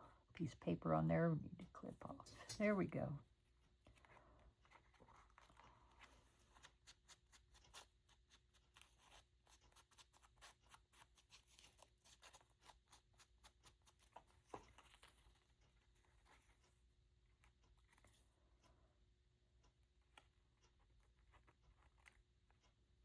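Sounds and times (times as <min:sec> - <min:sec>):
paper and tools clicking: 0:03.8 - 0:16.8, 0:20.0 - 0:22.8
paper rustling: 0:03.8 - 0:16.8.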